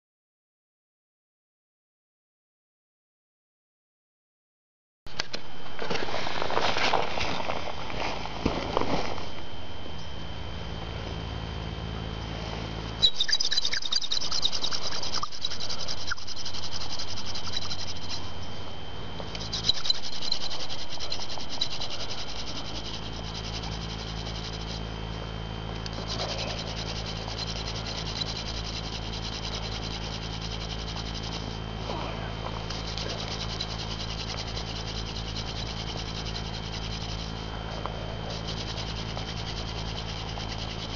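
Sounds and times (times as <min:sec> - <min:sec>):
wood grinding on wood: 0:19.2 - 0:24.8, 0:25.9 - 0:31.7, 0:32.4 - 0:40.9.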